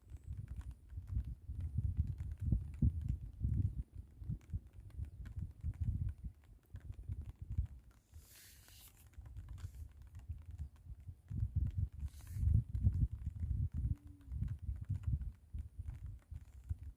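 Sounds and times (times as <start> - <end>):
wind buffeting microphone: 0.0 - 8.3, 9.1 - 16.9
brief hiss: 8.1 - 9.0.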